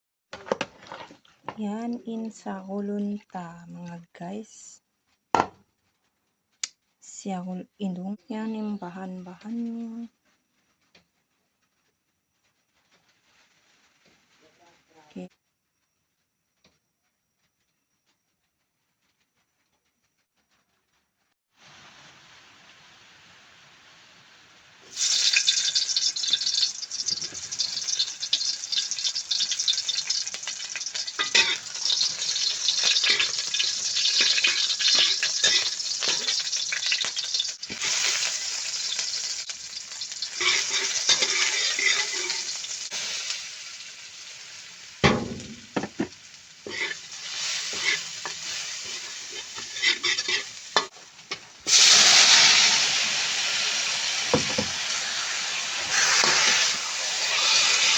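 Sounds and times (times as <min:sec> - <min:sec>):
knocks on a pan: 0:05.4 - 0:05.6, 0:45.0 - 0:46.1
food sizzling in hot oil: 0:21.5 - 0:57.9
spoon scraping a pan: 0:25.0 - 0:43.2, 0:45.0 - 0:52.7, 0:54.3 - 0:57.9.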